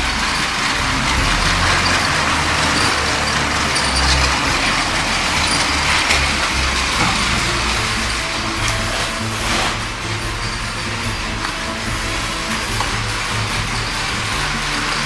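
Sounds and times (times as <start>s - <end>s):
toy train motors whirring: 0.0s - 15.0s.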